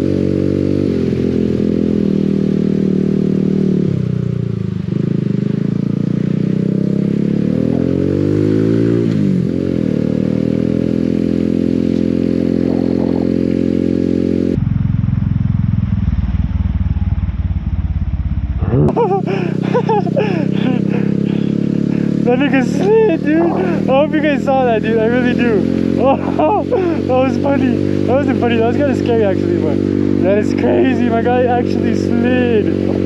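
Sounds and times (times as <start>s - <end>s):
motorcycle engine revving: 0.0s - 33.0s
low pulsing engine rumble: 12.3s - 33.0s.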